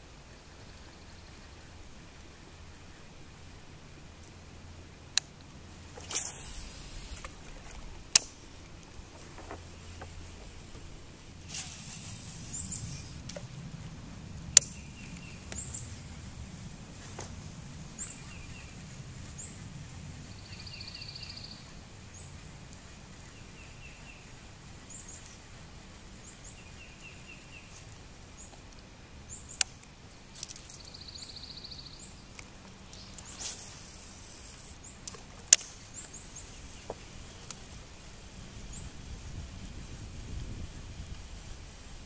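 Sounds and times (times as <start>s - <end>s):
low steady rumble: 0.0s - 42.0s
wild birds chirping: 0.0s - 42.0s
sharp clicks: 8.1s - 8.4s.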